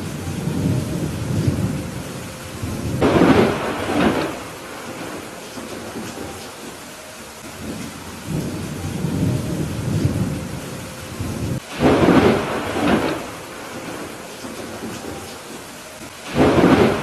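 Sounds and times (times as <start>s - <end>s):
sharp thunderclap: 0.0s - 6.4s, 11.2s - 15.6s, 16.2s - 17.0s
rolling thunder rumble: 0.0s - 17.0s
steady rain falling: 0.0s - 17.0s.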